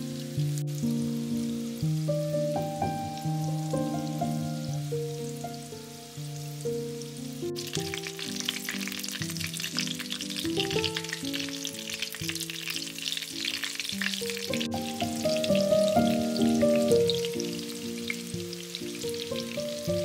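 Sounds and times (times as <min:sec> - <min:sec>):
background music: 0:00.0 - 0:20.0
food sizzling in a pan: 0:00.0 - 0:20.0.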